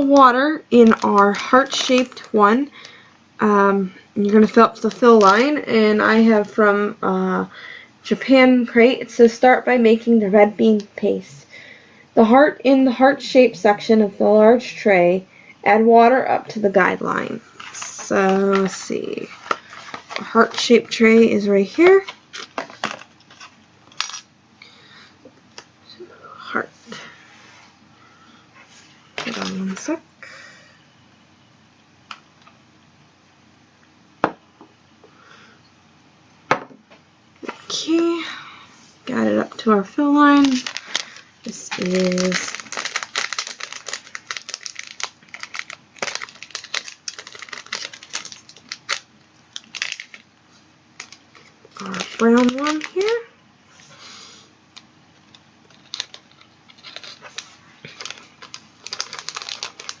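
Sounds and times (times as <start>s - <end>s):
plastic pieces clicking: 40.4s - 50.2s, 54.8s - 60.0s.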